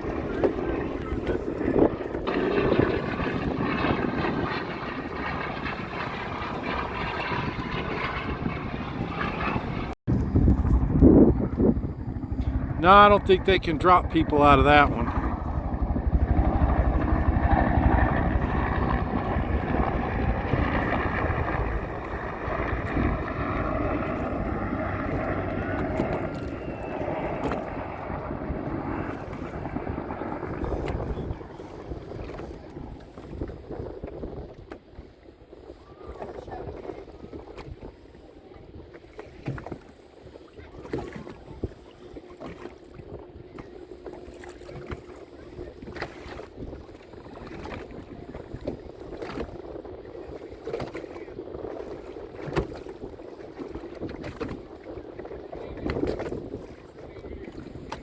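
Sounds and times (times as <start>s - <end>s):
airplane engines flying over: 0.0s - 39.9s
wind buffeting microphone: 0.0s - 58.0s.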